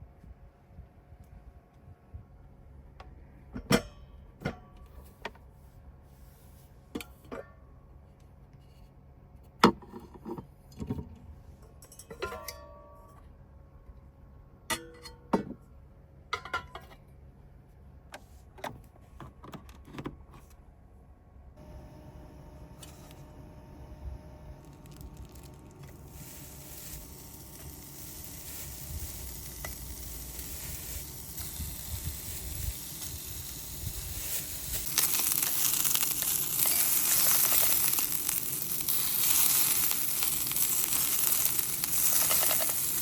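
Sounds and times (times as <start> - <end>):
steady low hum: 20.6 - 43.0
small hard objects clicking: 24.6 - 43.0.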